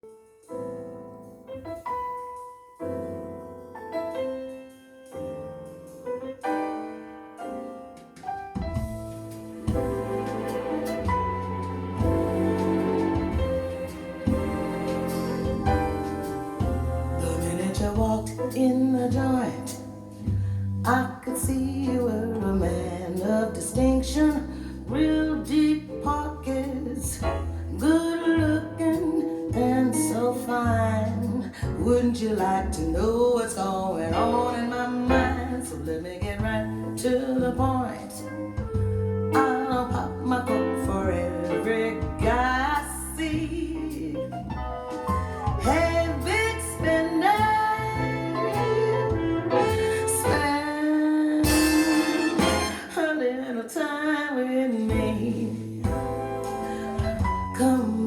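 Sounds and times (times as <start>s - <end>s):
bass and accompaniment: 0.0s - 53.2s, 54.8s - 58.0s
slow piano chords: 0.0s - 53.2s
guitar: 8.6s - 21.0s, 43.4s - 53.5s
woman singing: 12.2s - 20.0s, 20.8s - 44.4s, 45.4s - 58.0s.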